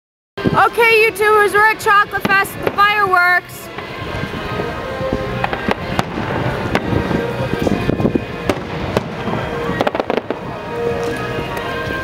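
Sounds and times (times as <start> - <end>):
background music: 0.4 - 12.0
fireworks bangs and crackles: 0.4 - 12.0.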